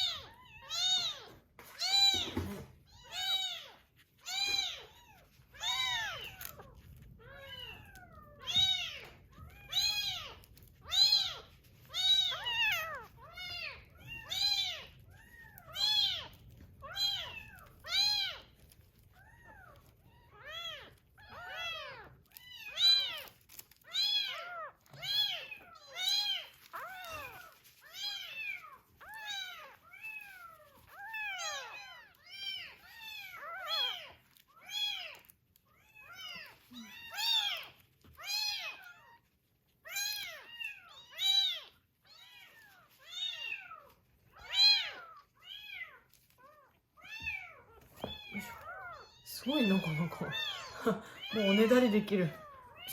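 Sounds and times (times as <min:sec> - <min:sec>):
kittens mewing: 0:39.8 - 0:52.9.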